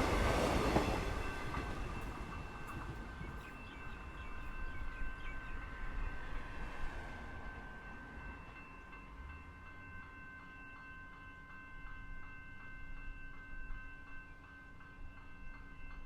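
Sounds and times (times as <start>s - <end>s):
electric train rumbling: 0.0s - 10.6s
crossing warning bells ringing: 0.0s - 16.0s.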